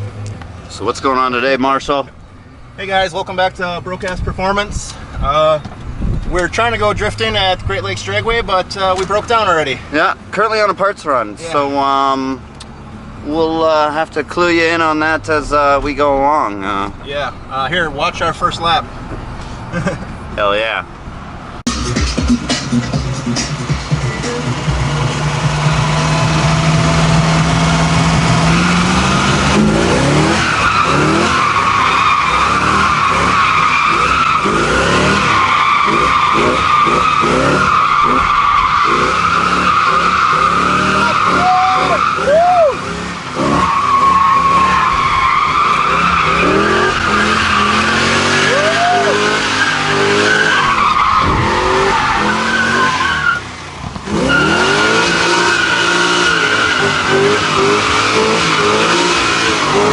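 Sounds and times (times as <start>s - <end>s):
engine revving hard: 22.1s - 53.4s, 54.0s - 59.9s
tyres squealing: 26.8s - 59.9s.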